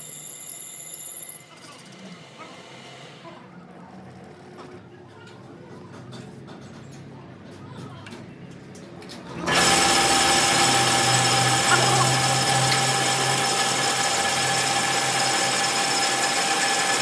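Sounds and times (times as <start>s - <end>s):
power tool whining: 9.4s - 17.0s.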